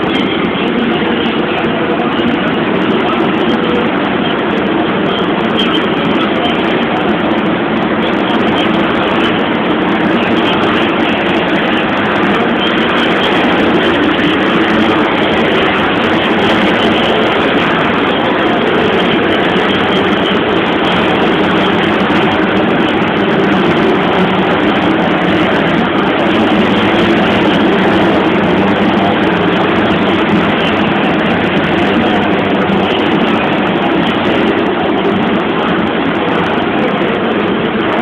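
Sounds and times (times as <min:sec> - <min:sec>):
dirt bike engines running: 0:00.0 - 0:38.0.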